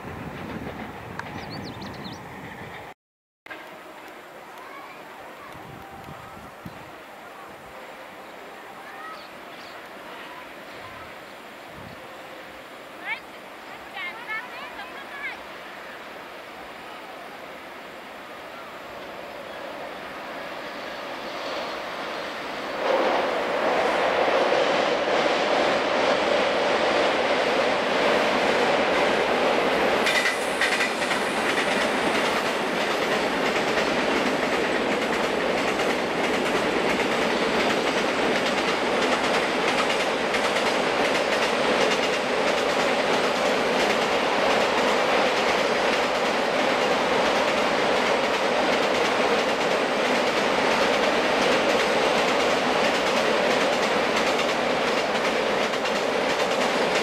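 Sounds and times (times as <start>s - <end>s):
freight train rumble: 0.0s - 57.0s
train wheels clattering over rail joints: 30.0s - 57.0s.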